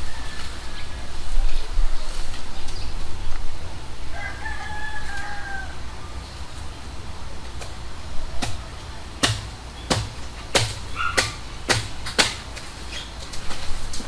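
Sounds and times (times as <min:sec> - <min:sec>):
blade chopping into palm: 0:08.4 - 0:12.7.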